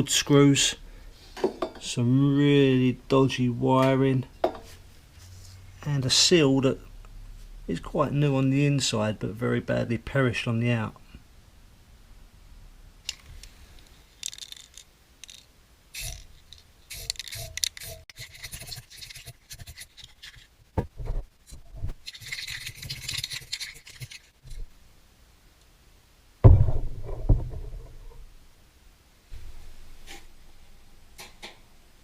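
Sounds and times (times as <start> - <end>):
hand scraping and rubbing: 13.4 - 24.7.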